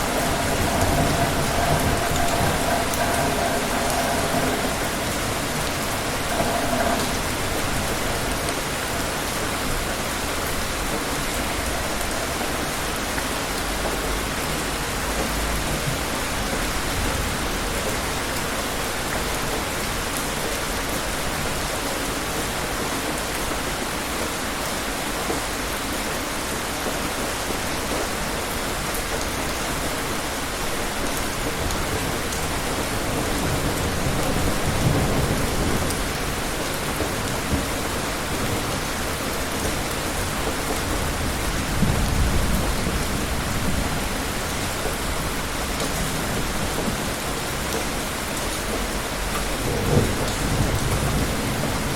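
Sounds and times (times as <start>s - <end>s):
distant thunder rumbling: 0.0s - 13.6s, 49.3s - 51.9s
steady rain: 0.0s - 51.9s.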